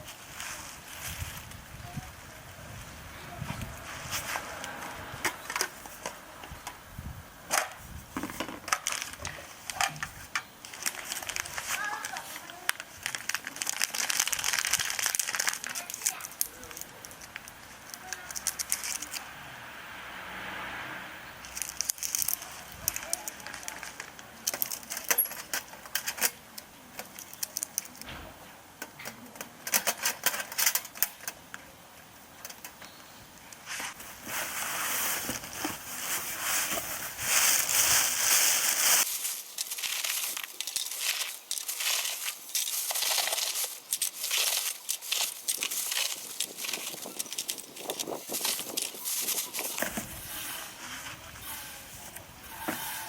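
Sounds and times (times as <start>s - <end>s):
charcoal crackling and clinking: 8.6s - 19.2s, 21.4s - 26.4s, 32.5s - 50.7s.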